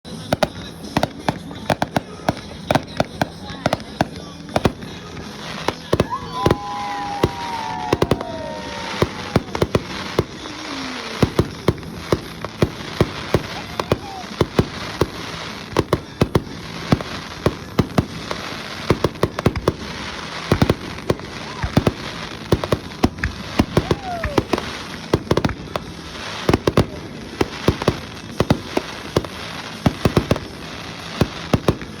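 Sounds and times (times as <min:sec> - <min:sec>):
firework shells bursting: 0:00.2 - 0:32.0
firework falling whistles: 0:05.7 - 0:12.4, 0:23.4 - 0:24.9.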